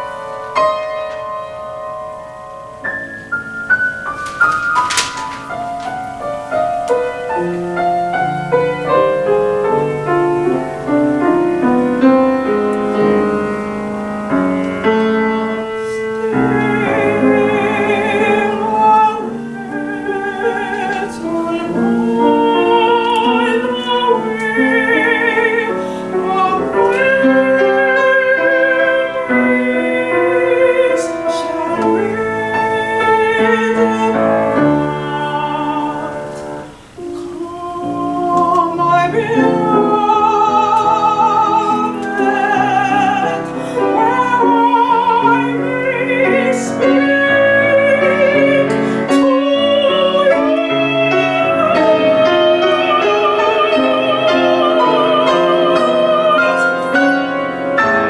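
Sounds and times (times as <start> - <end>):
woman singing with vibrato: 0.0 - 1.6, 3.9 - 58.0
piano accompaniment: 0.0 - 58.0.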